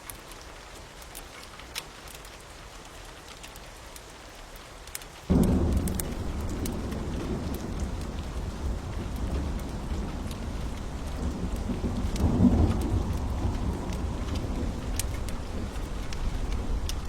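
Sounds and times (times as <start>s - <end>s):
steady rain: 0.0s - 17.0s
fire crackling pops: 5.3s - 17.0s
rolling thunder rumble: 5.3s - 17.0s.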